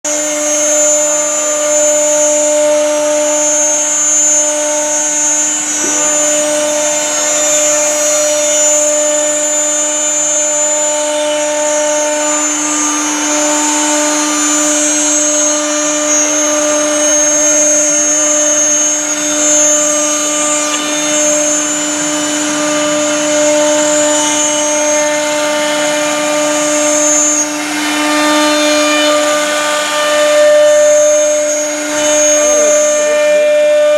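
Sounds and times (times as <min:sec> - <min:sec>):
router bit cutting wood: 0:00.0 - 0:33.9
router spindle whining hum: 0:00.0 - 0:33.9.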